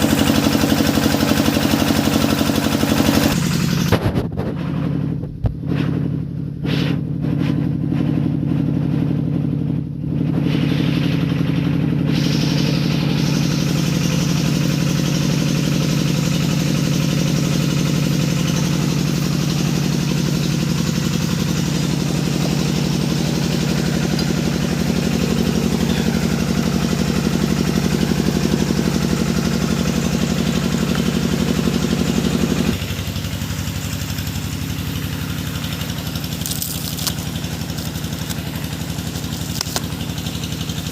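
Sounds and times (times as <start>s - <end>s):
drilling machine engine humming: 0.0s - 7.2s, 8.3s - 40.9s
hissing machine noise: 12.0s - 40.9s.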